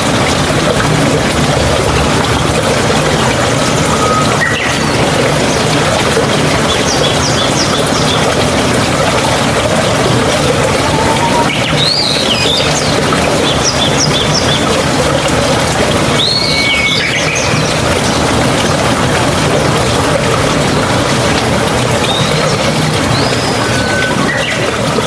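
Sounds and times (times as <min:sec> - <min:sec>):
flowing water rushing: 0:00.0 - 0:25.0
birds chirping: 0:03.2 - 0:09.0, 0:09.7 - 0:14.9, 0:16.1 - 0:18.8, 0:22.0 - 0:25.0.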